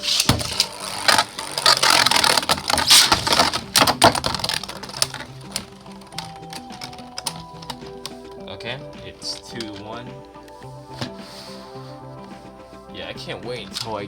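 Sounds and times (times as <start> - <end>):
spinning tops clashing: 0.0 - 8.3.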